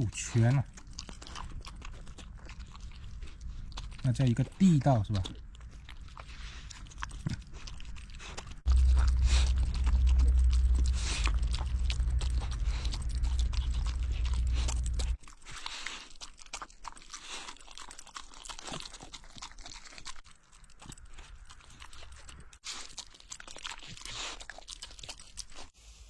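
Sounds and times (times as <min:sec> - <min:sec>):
crunching of bones: 0:00.0 - 0:25.7
pet chewing wetly: 0:00.0 - 0:25.8
loud low rumble: 0:08.6 - 0:15.2.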